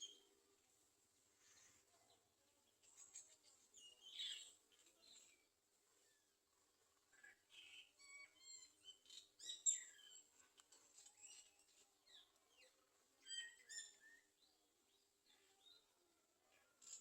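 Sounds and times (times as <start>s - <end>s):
birds chirping: 2.9s - 5.5s.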